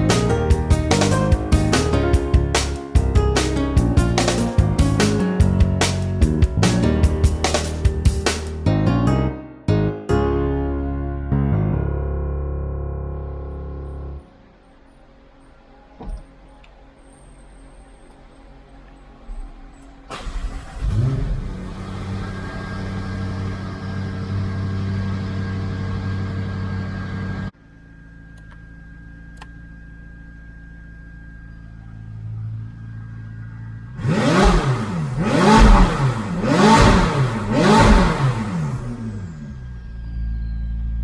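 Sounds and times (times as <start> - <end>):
engine revving: 0.0 - 8.6, 17.5 - 27.5, 32.0 - 41.0
car engine starting and idling: 0.0 - 8.7, 13.8 - 41.0.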